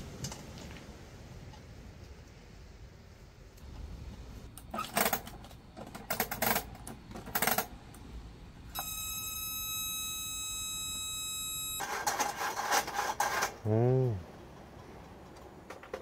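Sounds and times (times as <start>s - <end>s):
clicks and clatter of heater parts: 4.5s - 8.0s, 15.0s - 16.0s
high electronic beep: 8.8s - 11.8s.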